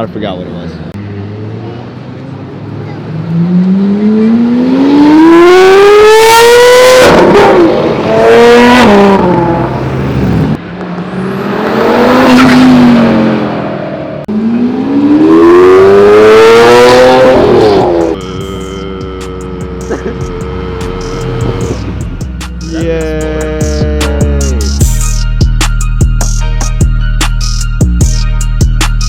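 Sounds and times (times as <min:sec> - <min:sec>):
car engine accelerating hard: 0:01.0 - 0:23.9.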